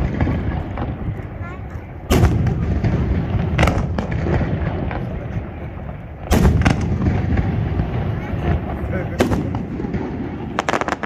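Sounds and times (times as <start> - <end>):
low rumbling echo: 0.0 - 11.0
firework shells bursting: 5.8 - 11.0.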